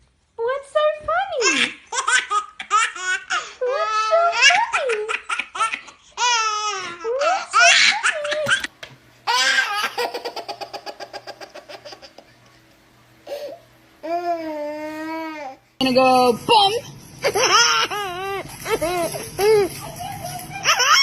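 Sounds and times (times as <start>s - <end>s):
baby laughing: 1.4s - 8.7s, 9.3s - 12.6s, 17.2s - 21.0s.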